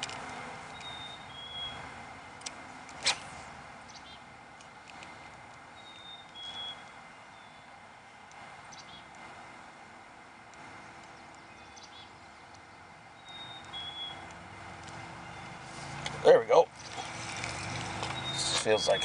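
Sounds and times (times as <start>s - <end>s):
faint bird chirps: 0.7s - 1.8s, 5.7s - 7.7s, 11.1s - 14.3s, 18.1s - 19.0s
songbird two-note call: 13.2s - 14.2s.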